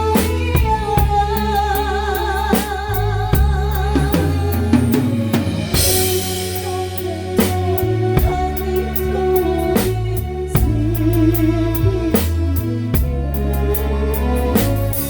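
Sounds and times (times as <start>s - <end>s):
live band playing: 0.0s - 15.0s
cymbal crash: 4.0s - 7.4s.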